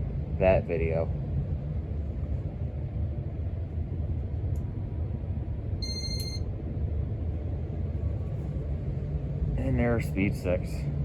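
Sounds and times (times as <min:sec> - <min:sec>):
ceiling fan humming: 0:00.0 - 0:11.0
short high beep: 0:05.8 - 0:06.4.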